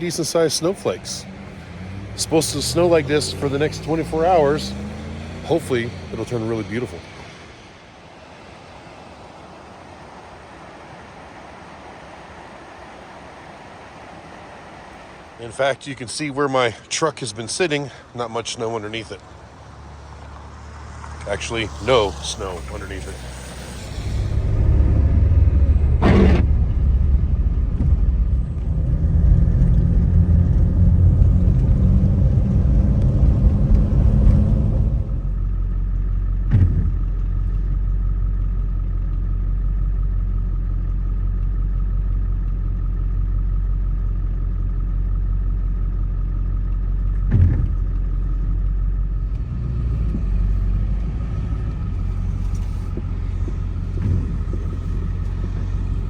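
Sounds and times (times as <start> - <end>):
truck engine rumble: 0.0 - 56.0
short knocks: 47.2 - 47.9.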